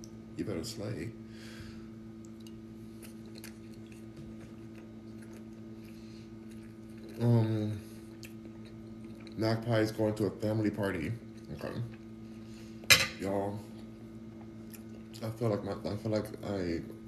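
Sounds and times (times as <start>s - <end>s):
low electrical hum: 0.0s - 17.0s
man chewing: 2.2s - 9.4s, 14.3s - 15.2s
man humming mm: 7.1s - 7.8s.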